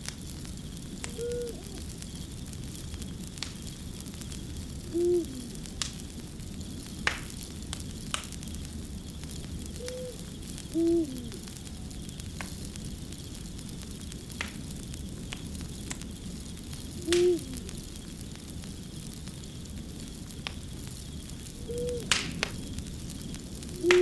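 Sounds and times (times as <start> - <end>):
fire crackling: 0.0 - 24.0
short low calls: 1.0 - 2.0, 4.8 - 5.8, 9.8 - 11.7, 17.0 - 17.7.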